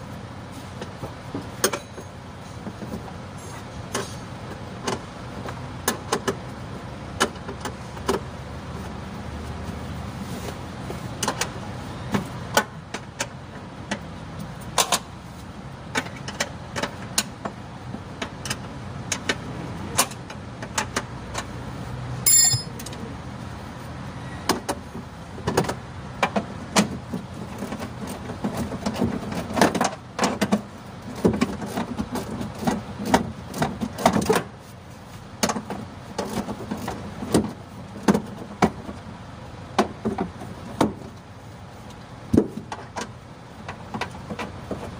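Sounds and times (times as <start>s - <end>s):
hand tools clinking on metal: 22.3s - 23.0s.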